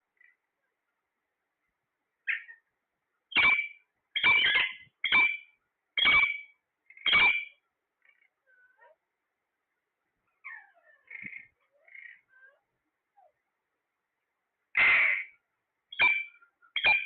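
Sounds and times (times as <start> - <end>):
parrot squawking: 3.3 - 5.4, 6.0 - 7.5, 14.8 - 17.0
faint chirps: 3.3 - 9.0, 10.2 - 13.5, 15.1 - 17.0.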